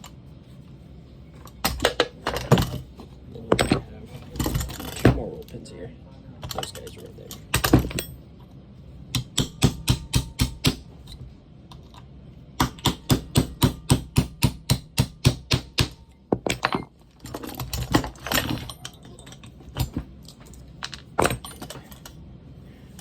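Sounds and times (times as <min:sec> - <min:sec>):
hammer tapping metal punch: 0:09.1 - 0:10.9, 0:12.6 - 0:16.9.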